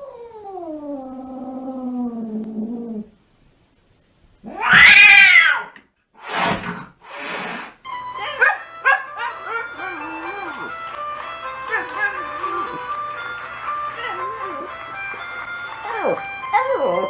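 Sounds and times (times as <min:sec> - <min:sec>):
cat meowing: 0:04.4 - 0:05.8
raspy cat sounds: 0:04.4 - 0:05.8
music: 0:07.8 - 0:17.0.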